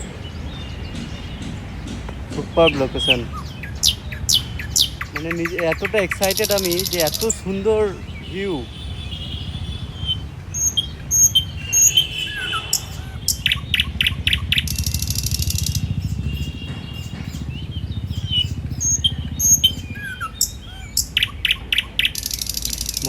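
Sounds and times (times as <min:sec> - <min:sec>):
birds chirping: 0:00.0 - 0:23.0
bird clicking calls: 0:00.9 - 0:08.7, 0:09.9 - 0:23.0.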